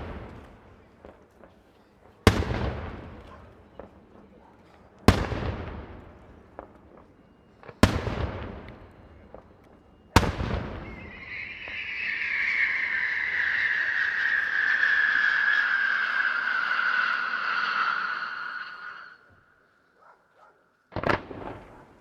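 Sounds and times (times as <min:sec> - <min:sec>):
fireworks shell bangs echoing: 0:02.3 - 0:07.1, 0:07.7 - 0:18.9.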